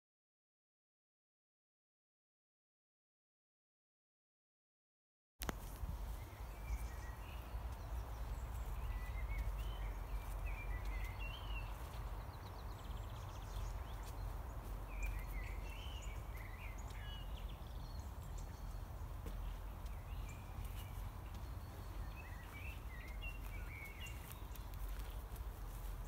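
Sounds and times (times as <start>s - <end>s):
songbirds singing: 5.4s - 26.0s.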